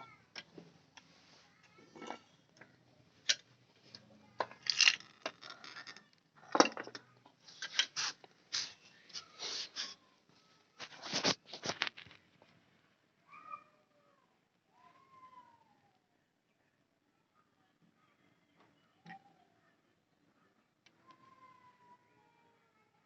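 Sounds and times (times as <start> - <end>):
small hard objects clattering: 4.4 - 7.0.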